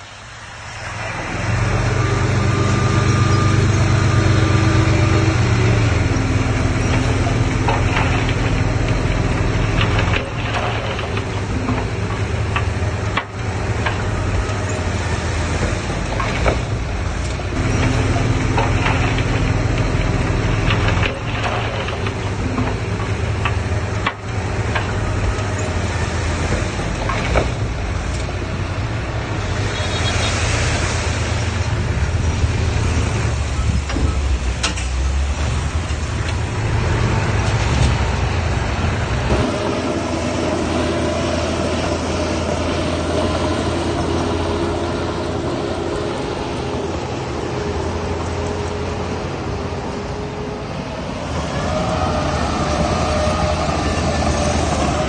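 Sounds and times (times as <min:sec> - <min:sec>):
heavy diesel engines running: 0:00.0 - 0:55.0
metallic clanks: 0:02.6 - 0:28.8.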